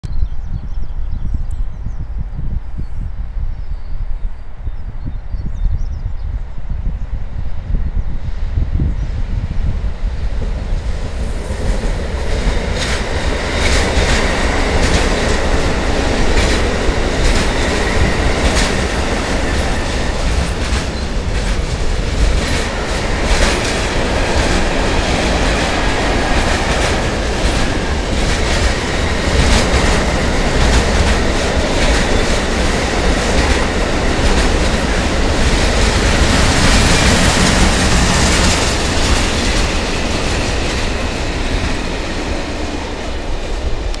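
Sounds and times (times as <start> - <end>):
train wheels clattering over rail joints: 11.0 - 42.9.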